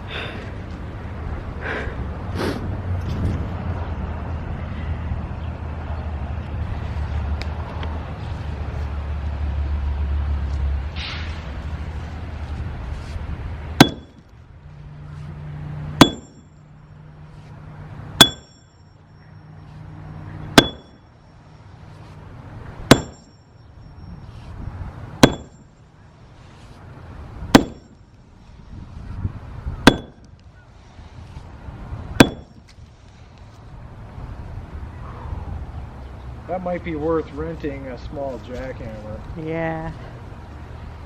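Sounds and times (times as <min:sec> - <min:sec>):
short metallic ring: 0:13.8 - 0:14.3, 0:16.0 - 0:16.7, 0:18.2 - 0:19.4, 0:20.6 - 0:21.1, 0:22.9 - 0:24.2, 0:25.2 - 0:25.8, 0:27.6 - 0:28.1, 0:29.9 - 0:30.2, 0:32.2 - 0:32.6
sledgehammer striking concrete: 0:13.8 - 0:14.3, 0:16.0 - 0:16.4, 0:18.2 - 0:18.6, 0:20.6 - 0:21.0, 0:22.9 - 0:23.3, 0:25.2 - 0:25.7, 0:27.5 - 0:28.0, 0:29.8 - 0:30.2, 0:32.2 - 0:32.6.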